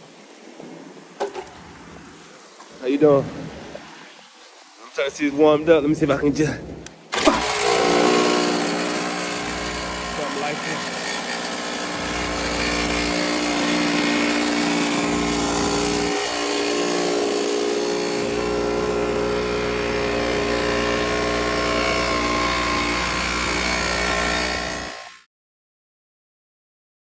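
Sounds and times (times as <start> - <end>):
small two-stroke engine running: 6.2 - 25.3.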